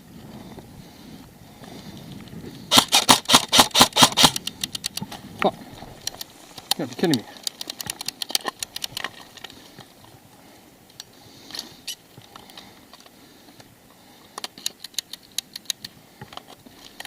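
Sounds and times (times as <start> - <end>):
sharp clicks: 2.7 - 9.6, 14.3 - 17.0.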